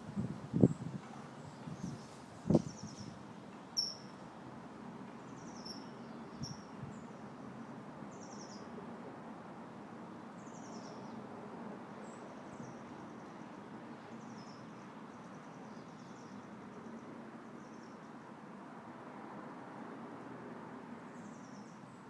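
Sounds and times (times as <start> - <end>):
wind rustling leaves: 0.0 - 22.0
small bird chirping: 3.8 - 4.1, 5.3 - 6.7.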